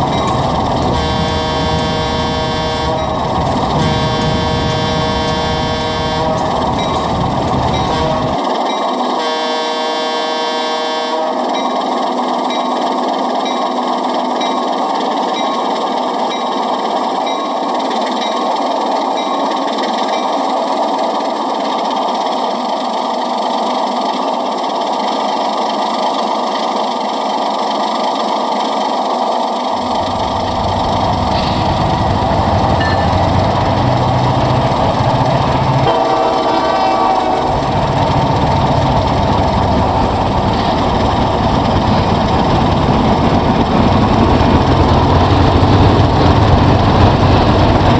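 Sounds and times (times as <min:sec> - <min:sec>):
locomotive horn blast: 0:00.0 - 0:08.4, 0:09.1 - 0:11.6, 0:29.8 - 0:38.4
model diesel locomotive running: 0:00.0 - 0:47.9.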